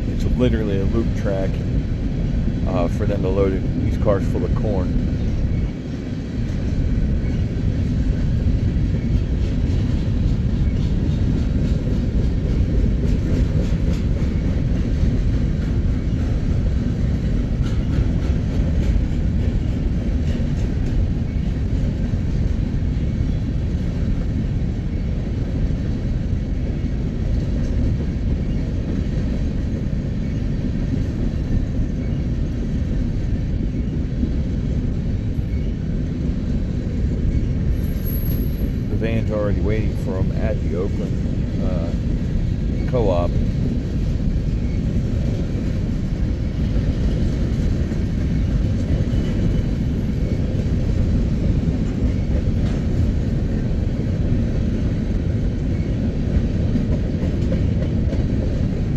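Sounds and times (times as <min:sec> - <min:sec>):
freight cars rolling on track: 0:00.0 - 0:58.9.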